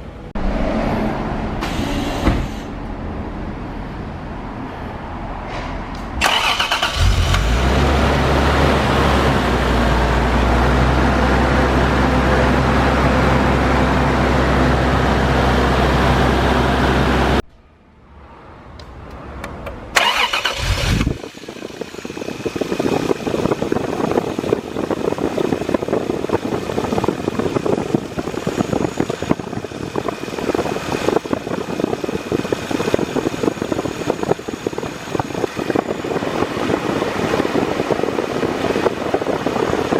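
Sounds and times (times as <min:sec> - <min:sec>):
car engine running steadily: 0:20.8 - 0:39.9.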